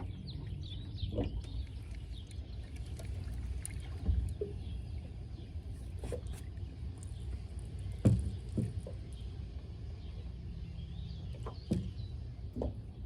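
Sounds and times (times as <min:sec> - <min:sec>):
waves lapping against boat hull: 0:00.0 - 0:13.0
light knocks on boat: 0:07.9 - 0:09.0, 0:11.3 - 0:12.8.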